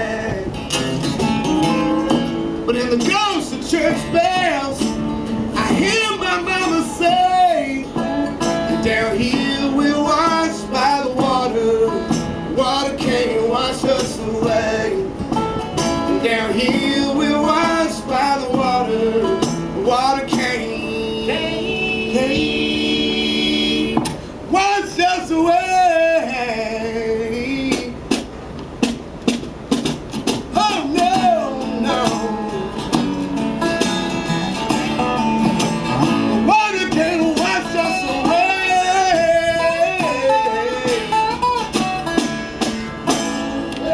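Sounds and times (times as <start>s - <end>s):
man singing: 0.0s - 0.6s, 2.6s - 15.2s, 16.1s - 28.1s, 30.5s - 33.0s, 36.3s - 41.4s
strummed acoustic guitar: 0.0s - 43.9s.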